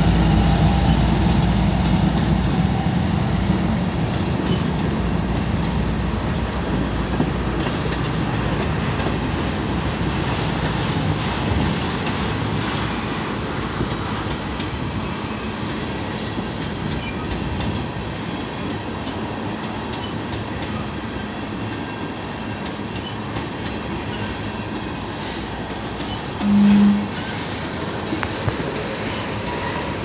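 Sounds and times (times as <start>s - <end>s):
steel wheels rolling on rail: 0.0s - 30.0s
horn-like tone: 26.4s - 27.3s.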